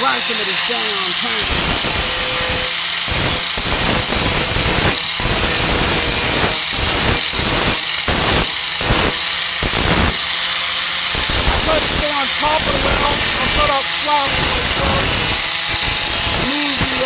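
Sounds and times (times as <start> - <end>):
angle grinder grinding metal: 0.0 - 17.0.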